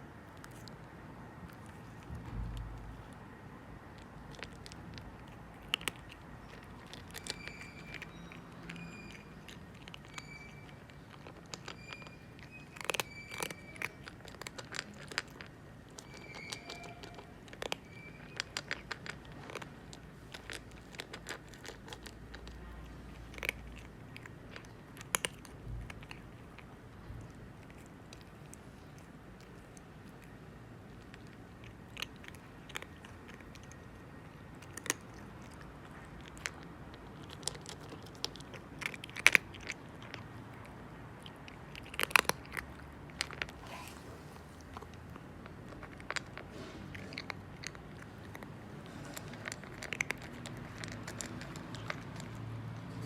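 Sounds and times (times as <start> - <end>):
cat crunching food: 0.0 - 53.0.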